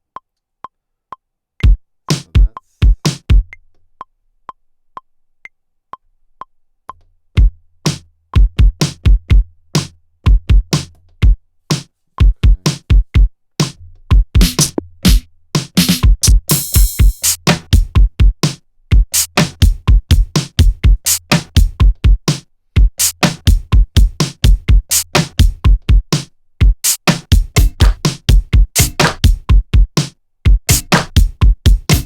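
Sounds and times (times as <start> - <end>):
electronic drum beat with bass: 1.6 - 3.6, 7.4 - 32.0
heavy kick drum hits: 25.4 - 32.0.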